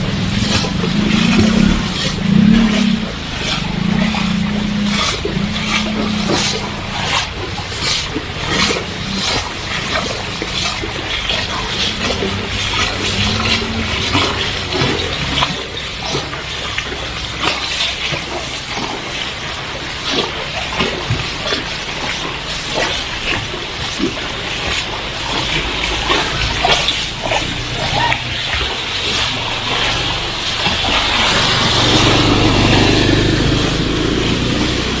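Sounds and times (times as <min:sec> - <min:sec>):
low hum: 0:00.0 - 0:17.4
heavy rain splashing on street: 0:00.0 - 0:35.0.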